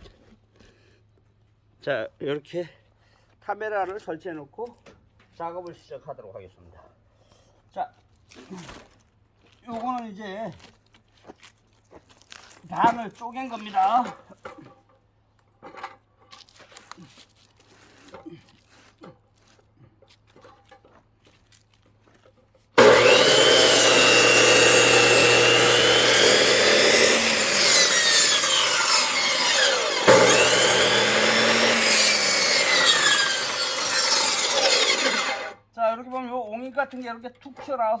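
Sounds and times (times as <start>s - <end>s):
power saw cutting log: 22.8s - 35.6s.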